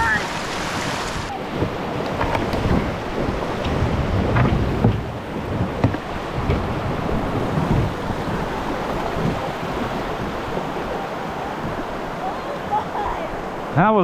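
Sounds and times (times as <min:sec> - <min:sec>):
river water rushing: 0:00.0 - 0:14.0
light knocks on kayak: 0:03.6 - 0:06.6.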